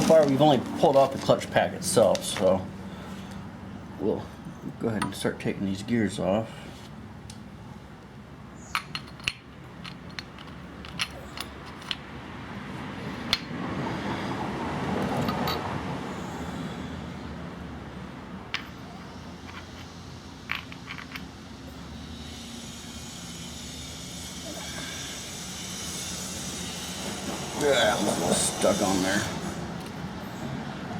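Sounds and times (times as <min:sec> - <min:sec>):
metal tools clinking: 0:19.4 - 0:21.3.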